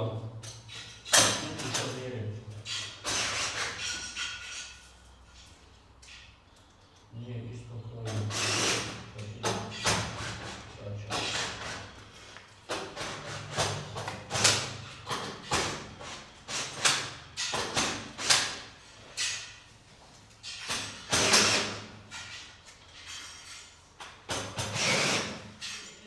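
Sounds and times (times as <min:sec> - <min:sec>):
garage door panels knocking and scraping: 0:09.4 - 0:19.4.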